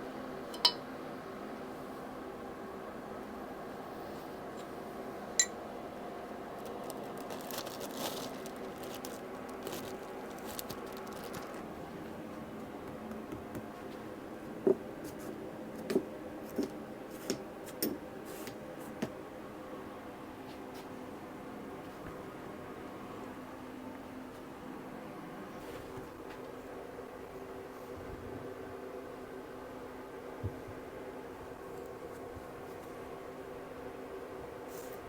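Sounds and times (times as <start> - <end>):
steady hum: 0.0 - 35.0
tools knocking and clinking: 0.6 - 0.8
scraping and rustling: 6.6 - 12.2.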